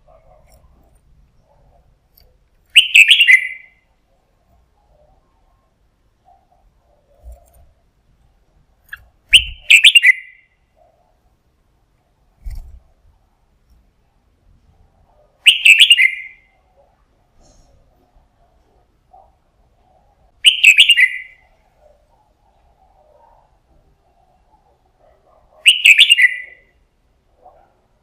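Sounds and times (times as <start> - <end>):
bird song phrases: 2.7 - 3.9, 8.8 - 11.0, 15.4 - 16.6, 19.2 - 24.9, 25.6 - 26.8.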